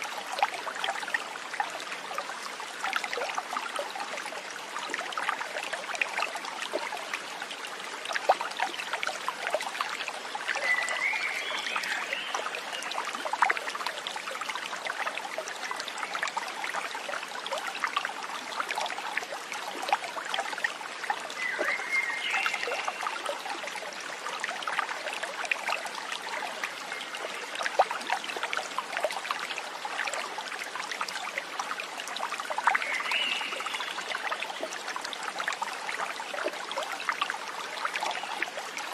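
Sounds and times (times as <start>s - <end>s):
stream trickling and splashing: 0.0s - 38.9s.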